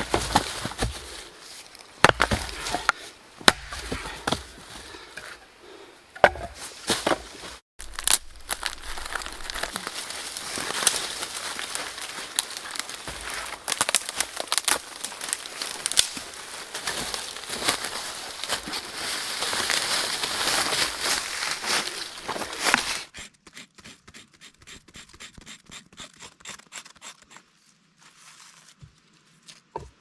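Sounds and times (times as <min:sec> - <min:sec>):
crackling and rustling: 0:00.0 - 0:03.0, 0:06.6 - 0:23.1
wood chopping knocks and snaps: 0:02.0 - 0:04.5, 0:06.2 - 0:07.2.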